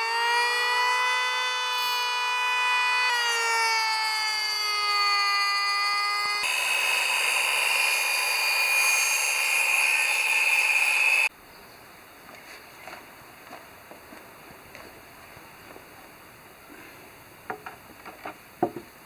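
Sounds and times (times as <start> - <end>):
chainsaw running at full throttle: 6.4 - 11.3.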